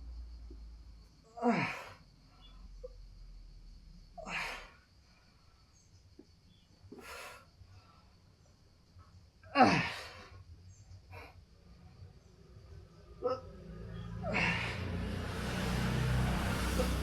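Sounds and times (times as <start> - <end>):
man breathing out forcefully: 6.9 - 7.5, 14.2 - 15.8
man grunting: 9.5 - 10.2.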